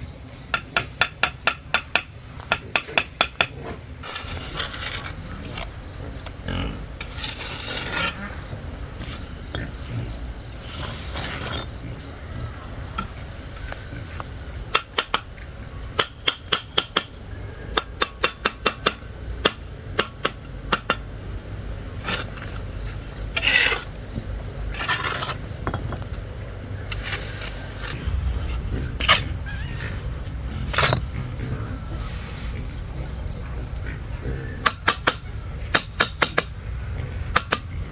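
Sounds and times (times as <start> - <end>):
metal scraping strokes: 7.0 - 11.8.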